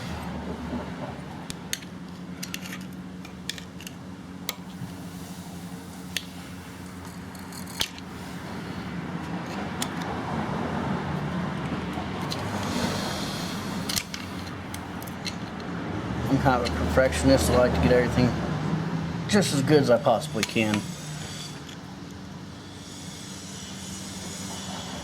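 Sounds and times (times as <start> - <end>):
steady low hum: 0.0 - 25.0
broad rushing noise: 4.6 - 21.8
hand tools clicking on metal: 9.3 - 10.2, 13.8 - 15.7, 16.3 - 17.9, 20.2 - 20.9.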